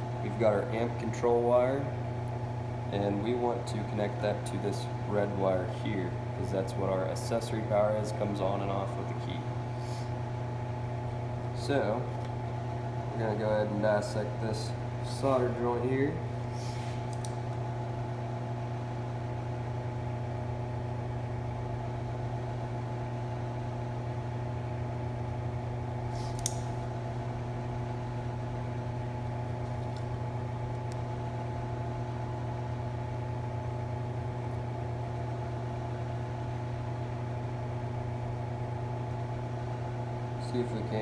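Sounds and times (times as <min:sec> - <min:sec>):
low mechanical hum: 0:00.0 - 0:41.0
sharp click: 0:26.3 - 0:26.8.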